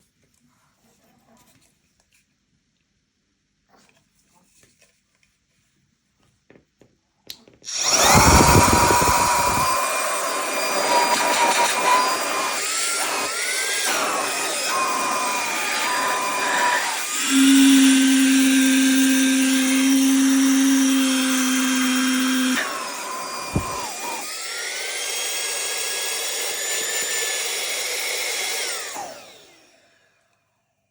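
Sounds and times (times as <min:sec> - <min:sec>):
motor whining with air rush: 0:07.7 - 0:29.8.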